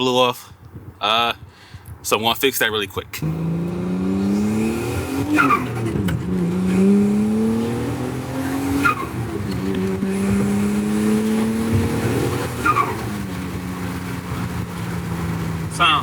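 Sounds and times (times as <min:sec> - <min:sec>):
turbocharged engine pulling under load: 0:03.2 - 0:16.0.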